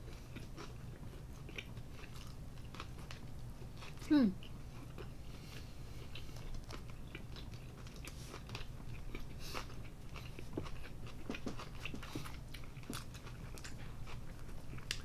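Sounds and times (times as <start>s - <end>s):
chewing with crunches: 0.0s - 15.0s.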